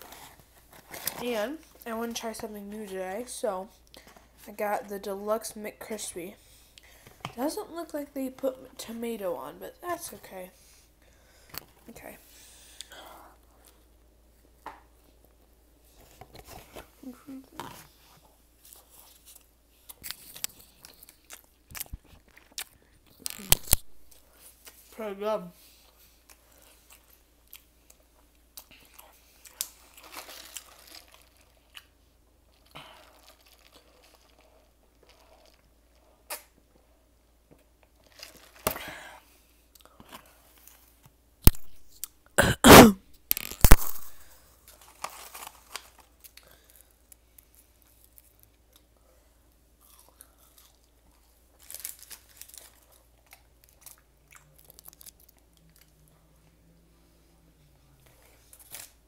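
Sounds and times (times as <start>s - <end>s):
person chewing crunchy food: 18.7s - 24.2s, 49.8s - 56.0s
person coughing: 42.4s - 43.0s.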